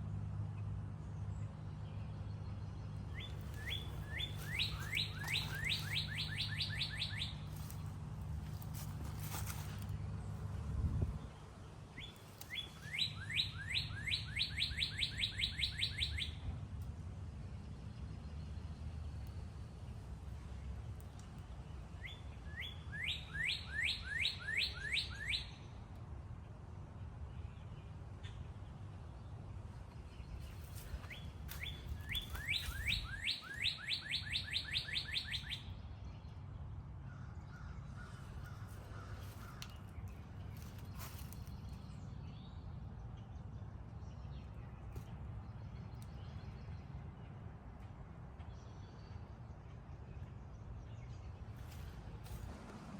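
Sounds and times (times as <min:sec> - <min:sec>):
songbird singing: 0:00.0 - 0:52.9
songbird rising whistled notes: 0:03.6 - 0:07.4, 0:31.1 - 0:35.6
low background rumble: 0:35.6 - 0:52.9.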